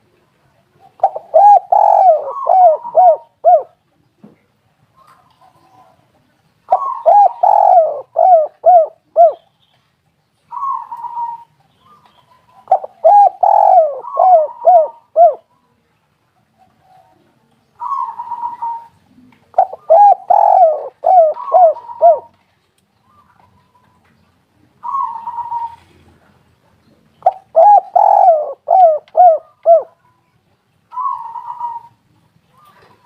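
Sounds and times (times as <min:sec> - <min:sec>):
dove cooing: 0:00.7 - 0:03.8, 0:06.7 - 0:09.4, 0:10.5 - 0:15.5, 0:17.8 - 0:22.4, 0:24.8 - 0:26.3, 0:27.2 - 0:30.0, 0:30.9 - 0:33.0.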